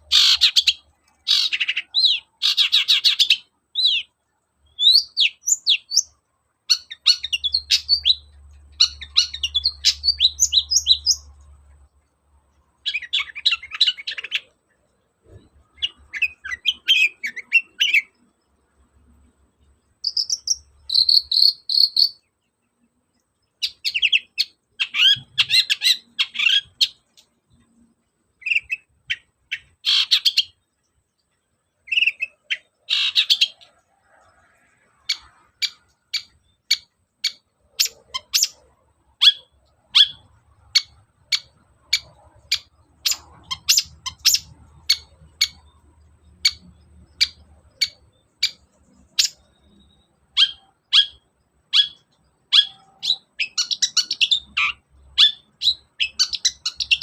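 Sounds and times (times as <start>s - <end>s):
shrike singing: 20.0s - 22.3s.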